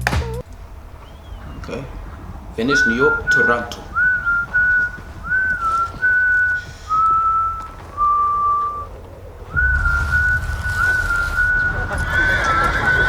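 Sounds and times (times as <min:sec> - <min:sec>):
person whistling a slow tune: 0:02.7 - 0:08.9, 0:09.5 - 0:13.0.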